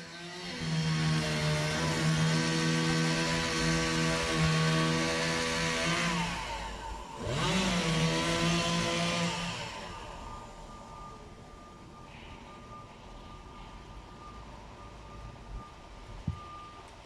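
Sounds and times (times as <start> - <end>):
chainsaw revving: 0.0 - 10.7.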